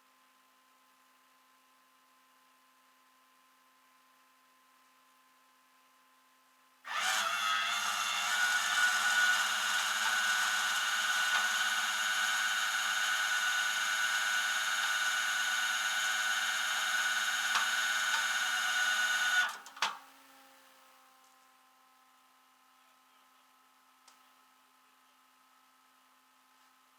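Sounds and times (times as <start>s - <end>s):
small motor whining: 6.9s - 19.7s
click: 17.5s - 18.3s, 19.4s - 20.0s, 24.0s - 24.2s.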